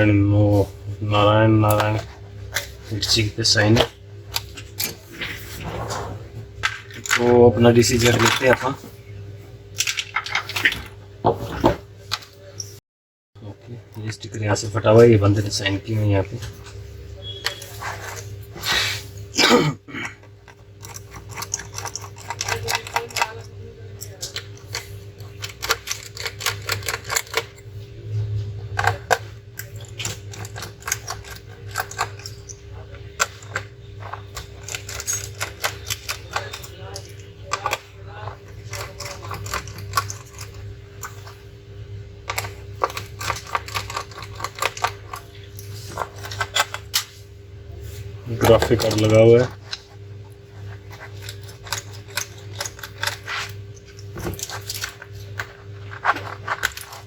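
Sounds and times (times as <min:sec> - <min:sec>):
steady low hum: 0:00.0 - 0:12.8, 0:13.4 - 0:57.0.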